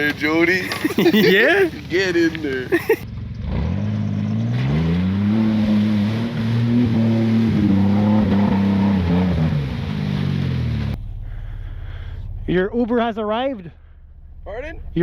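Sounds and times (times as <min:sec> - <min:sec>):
truck engine revving: 0:03.3 - 0:11.3.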